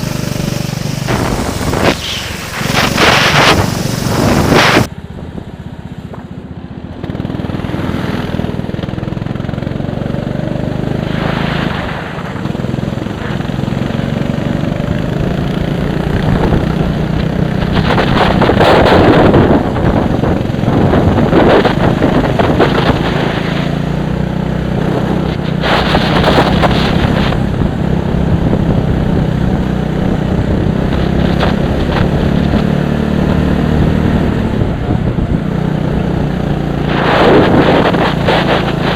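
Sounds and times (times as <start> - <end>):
racing engine running: 0.0 - 38.9
wind buffeting microphone: 0.3 - 5.5, 14.8 - 38.9.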